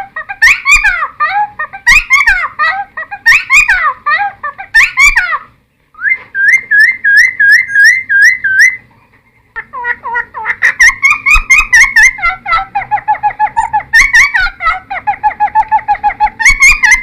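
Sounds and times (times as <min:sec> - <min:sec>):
bird singing whistled phrases: 0:06.0 - 0:08.8.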